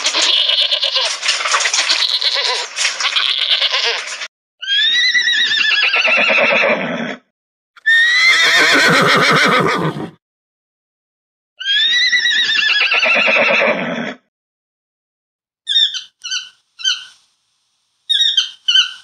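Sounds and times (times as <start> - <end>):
sheep bleating: 0.0 - 1.2, 1.9 - 4.2
horses whinnying: 0.0 - 7.2, 7.8 - 10.2, 11.6 - 14.2.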